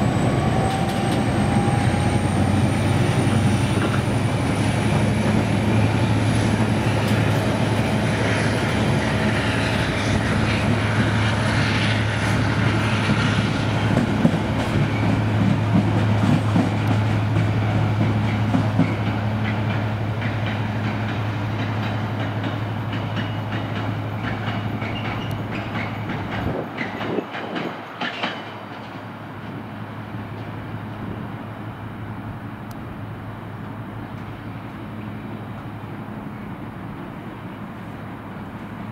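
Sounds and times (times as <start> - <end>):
train wheels clattering over rail joints: 0.0 - 29.6.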